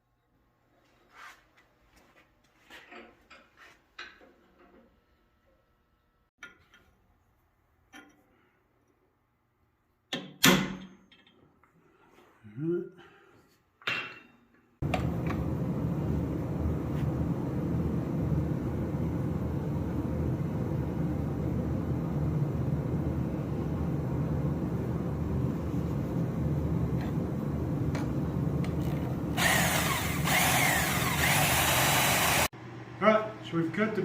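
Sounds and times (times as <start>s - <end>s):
power saw cutting steel: 29.4s - 32.5s.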